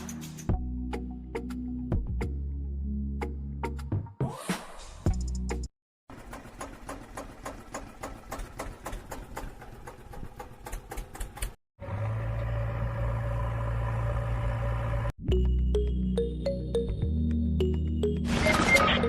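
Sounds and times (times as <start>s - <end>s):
rapid mechanical clicking: 6.1s - 11.6s.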